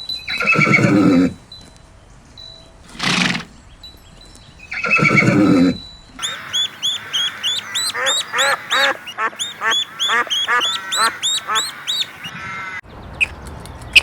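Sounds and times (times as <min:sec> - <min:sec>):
horse whinnying: 0:00.3 - 0:01.4, 0:02.9 - 0:03.6, 0:04.8 - 0:05.8
horse snorting: 0:00.4 - 0:01.4, 0:02.9 - 0:03.6, 0:04.9 - 0:05.8
chicks cheeping: 0:06.2 - 0:12.4.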